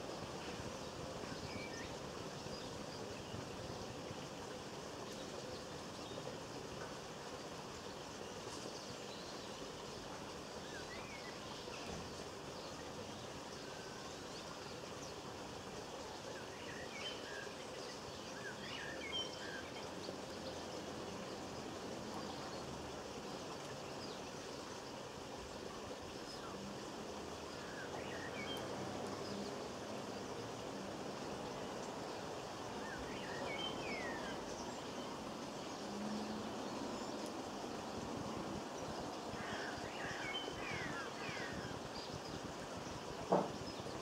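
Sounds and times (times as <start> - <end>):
outdoor background hiss: 0.0 - 44.0
small birds chirping: 0.4 - 44.0.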